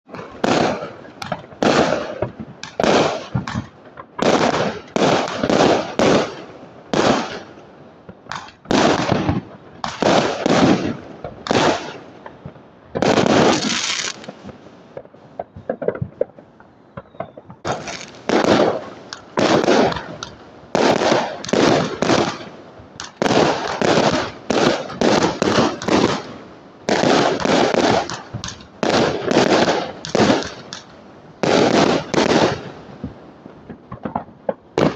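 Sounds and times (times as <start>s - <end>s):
fireworks bangs: 0.1s - 34.9s.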